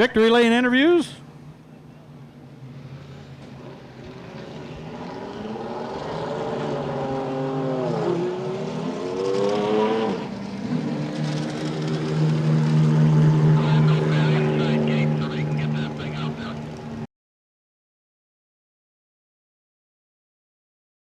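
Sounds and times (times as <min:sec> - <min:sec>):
race truck engine: 0:00.0 - 0:17.0.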